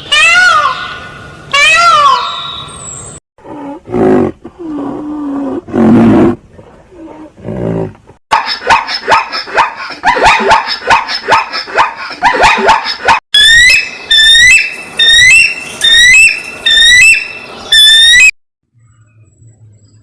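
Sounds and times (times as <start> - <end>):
animal growls and roars: 3.4 - 8.1.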